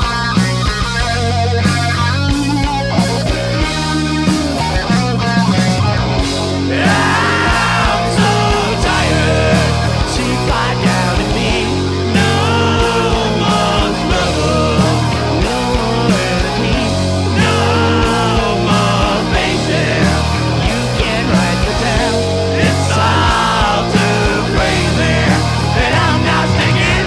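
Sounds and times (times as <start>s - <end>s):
bass guitar: 0.0s - 27.0s
drums: 0.0s - 27.0s
electric guitar: 0.0s - 27.0s.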